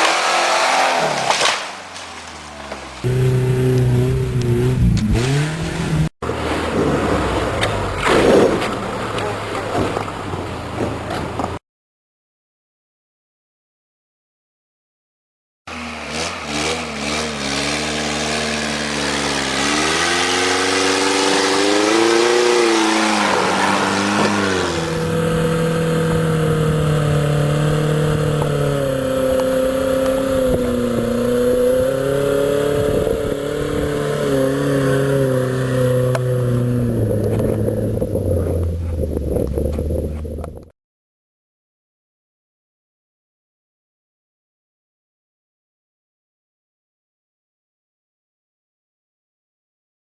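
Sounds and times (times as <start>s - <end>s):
truck engine revving under load: 0.0s - 11.6s, 15.7s - 40.7s.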